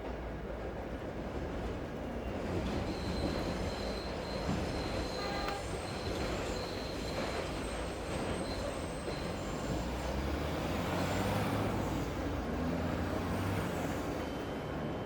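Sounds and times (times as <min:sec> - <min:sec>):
train rumbling on rails: 0:00.0 - 0:15.0
train wheels squealing: 0:02.2 - 0:12.2.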